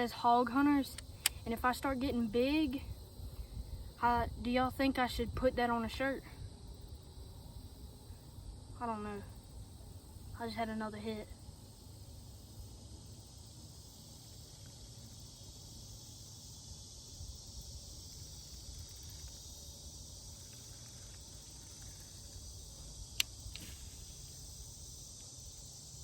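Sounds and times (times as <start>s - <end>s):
insects chorus: 0.0s - 26.0s
sharp click: 23.1s - 23.9s.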